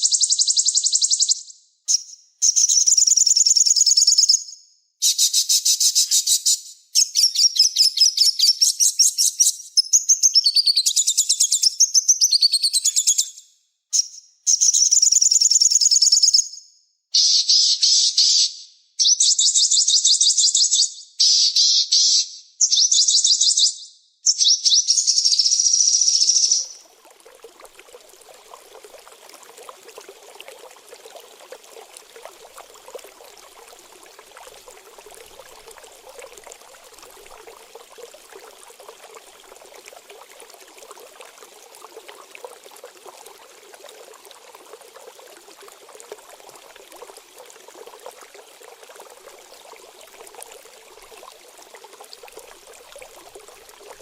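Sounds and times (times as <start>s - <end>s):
trickling water: 0.0s - 0.5s, 25.4s - 54.0s.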